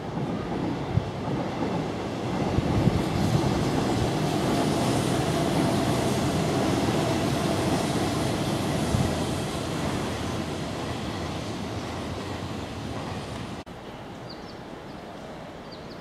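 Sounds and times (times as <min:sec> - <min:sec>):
electric train rumbling: 0:00.0 - 0:15.6.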